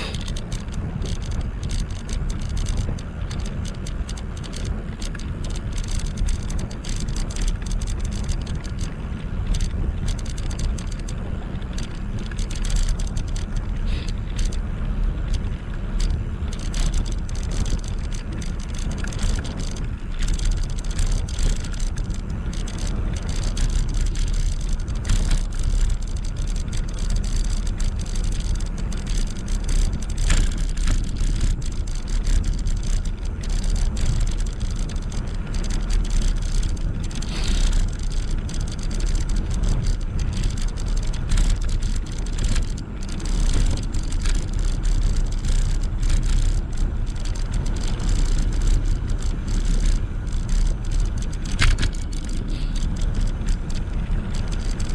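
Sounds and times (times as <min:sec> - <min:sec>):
small rattles and clicks: 0:00.0 - 0:54.9
tyre and road noise: 0:00.0 - 0:54.9
wind rumble on microphone: 0:00.0 - 0:54.9.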